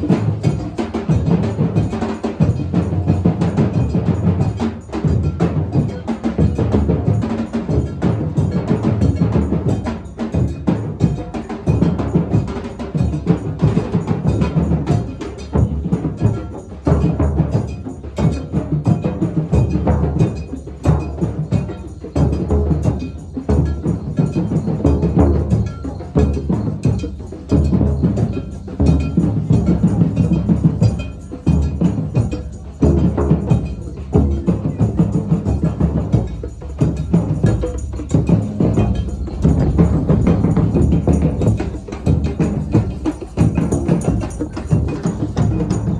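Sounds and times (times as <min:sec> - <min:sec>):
drums playing a busy rhythm: 0:00.0 - 0:45.9
live percussion music: 0:00.0 - 0:45.9.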